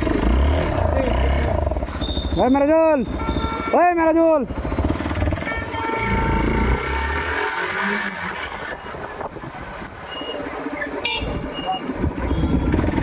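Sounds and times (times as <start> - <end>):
motorcycle engine running: 4.5 - 6.9, 11.1 - 13.0
wind rumble on microphone: 8.5 - 13.0.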